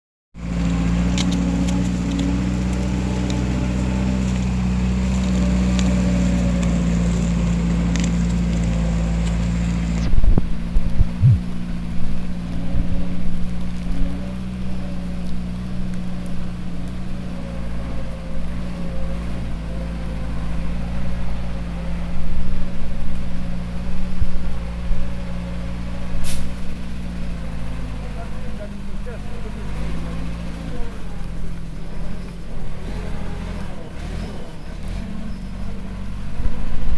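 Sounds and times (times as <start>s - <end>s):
tractor diesel engine running: 0.4s - 36.9s
irregular low thumps: 10.2s - 11.5s
gusts: 11.1s - 11.5s.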